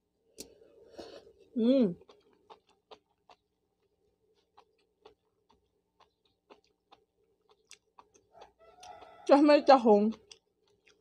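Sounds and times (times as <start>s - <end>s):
person chewing noodles: 0.2s - 11.0s.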